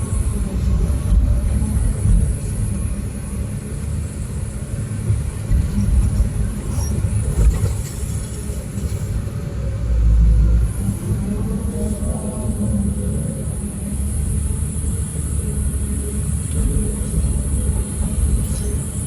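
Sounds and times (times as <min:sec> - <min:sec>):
diesel machinery rumbling: 0:00.0 - 0:19.0.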